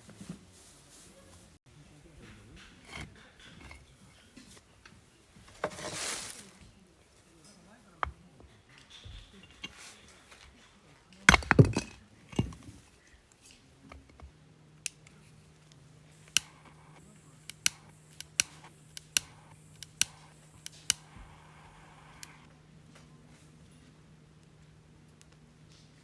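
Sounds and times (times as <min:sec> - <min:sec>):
faint steady hum: 0:10.8 - 0:26.0
sharp clicks and taps: 0:16.2 - 0:22.5.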